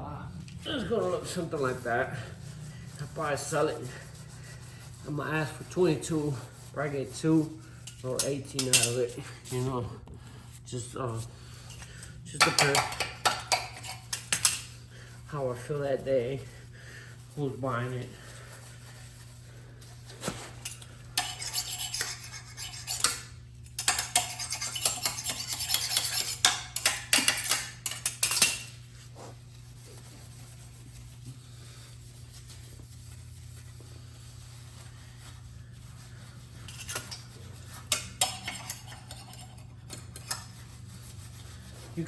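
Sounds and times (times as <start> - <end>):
steady low hum: 0.0 - 42.0
scrubbing metal part: 20.6 - 28.9, 34.4 - 42.0.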